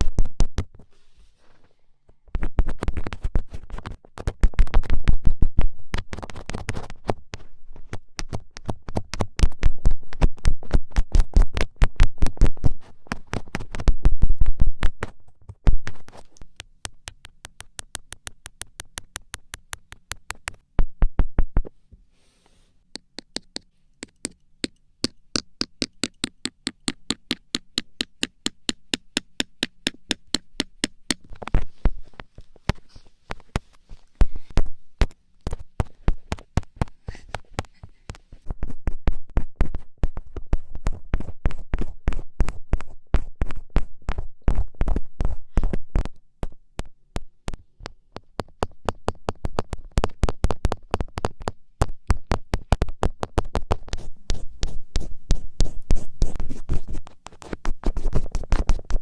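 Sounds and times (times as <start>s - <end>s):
fingertips tapping: 14.8s - 21.7s, 22.8s - 59.0s.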